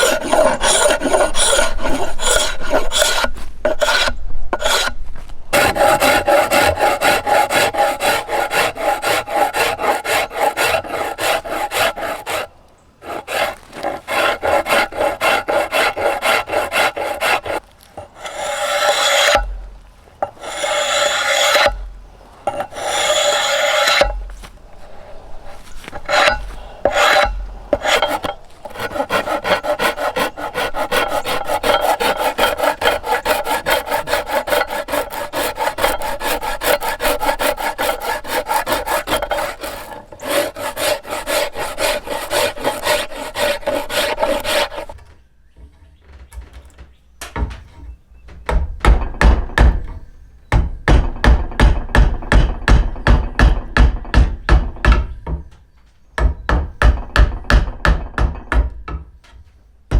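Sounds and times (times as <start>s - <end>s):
rasp scraping wood: 0.0s - 19.6s, 20.2s - 45.0s
dull thumps: 21.6s - 55.6s, 56.2s - 59.9s.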